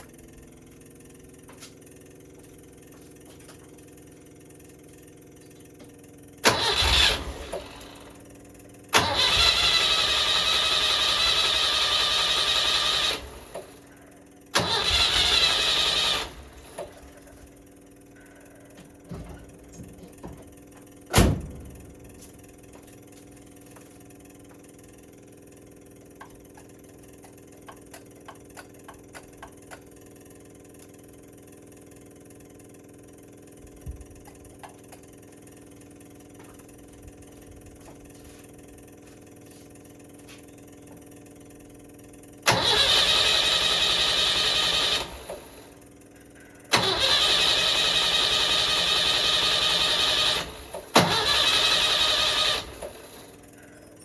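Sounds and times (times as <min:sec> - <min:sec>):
car engine starting: 0:06.4 - 0:08.2, 0:08.9 - 0:13.8, 0:14.5 - 0:17.4, 0:42.4 - 0:45.8, 0:46.7 - 0:53.4.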